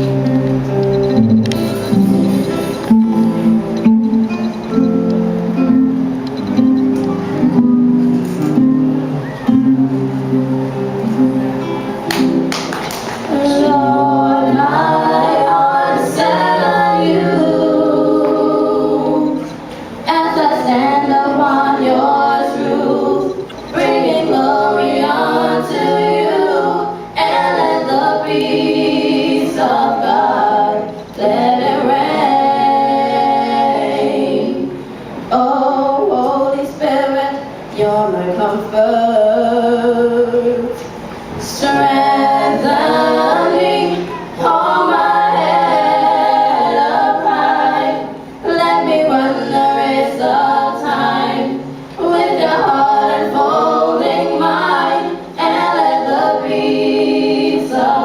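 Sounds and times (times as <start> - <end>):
vocal group singing gospel: 12.2 - 58.0.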